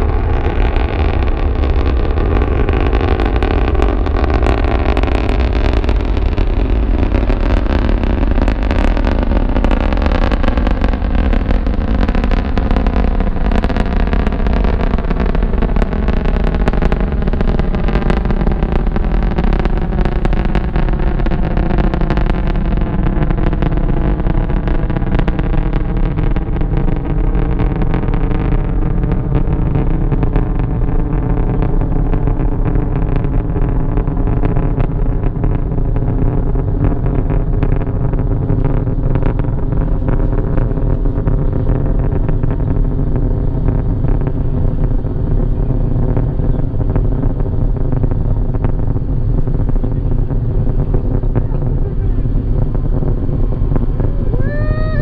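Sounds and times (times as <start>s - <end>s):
rocket engines rumbling: 0.0s - 55.0s
falling tones: 50.2s - 55.0s.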